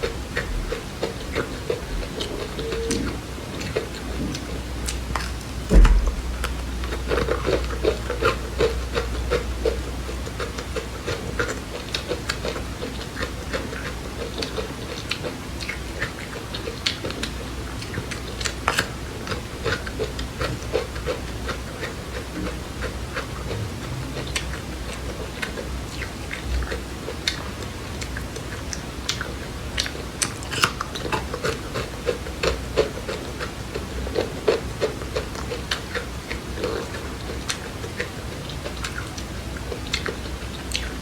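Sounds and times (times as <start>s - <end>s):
chewing crunchy seeds: 0.0s - 41.0s
thump: 5.7s - 7.0s.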